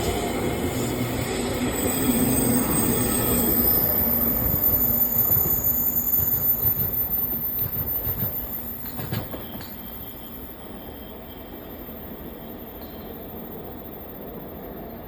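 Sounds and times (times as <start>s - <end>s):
electric train running: 0.0s - 10.3s.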